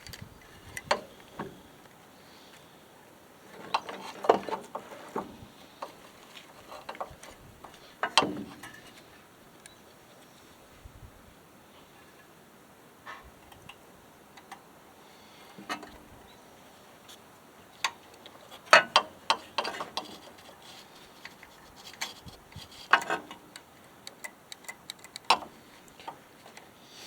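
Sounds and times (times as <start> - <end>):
clicks and metallic clinks of parts: 17.8 - 26.8.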